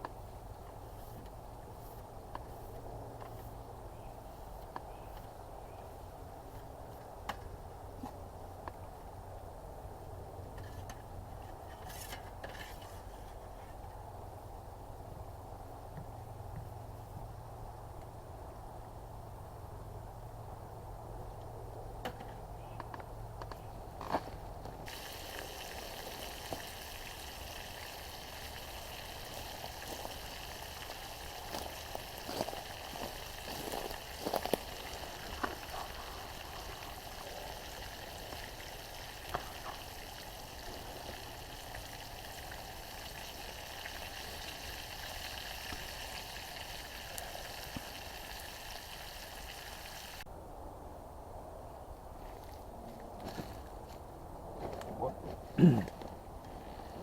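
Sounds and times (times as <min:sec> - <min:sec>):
food sizzling in a frying pan: 0:24.9 - 0:35.7, 0:36.3 - 0:50.2.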